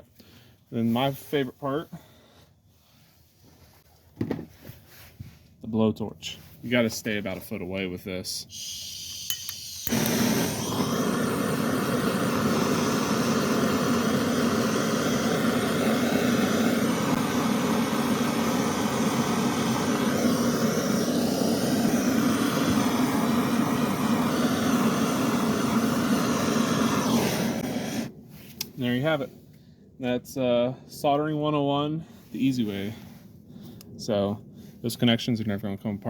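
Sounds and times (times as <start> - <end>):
blowtorch running: 8.5 - 28.2.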